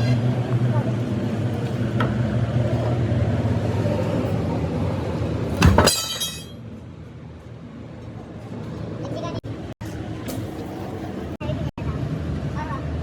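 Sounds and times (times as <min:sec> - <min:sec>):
heavy engine running: 0:00.0 - 0:05.9
loud metallic clang: 0:05.6 - 0:06.6.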